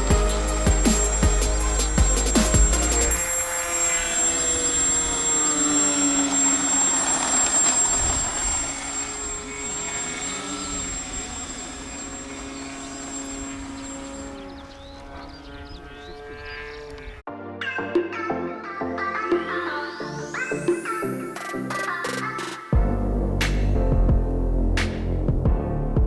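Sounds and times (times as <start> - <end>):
model aircraft propeller drone: 3.0 - 17.2.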